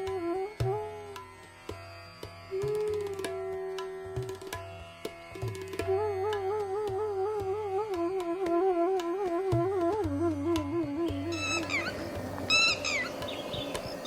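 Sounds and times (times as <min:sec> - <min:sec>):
tabla strokes: 0:00.0 - 0:14.0
flute melody: 0:08.5 - 0:14.0.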